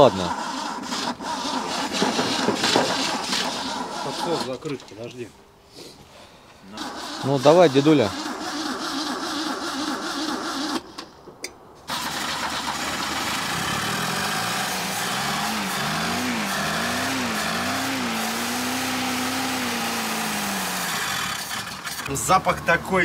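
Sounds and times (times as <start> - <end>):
engine cranking: 0.0 - 5.0, 6.7 - 11.1, 11.9 - 22.6
car engine running and revving: 12.3 - 23.0.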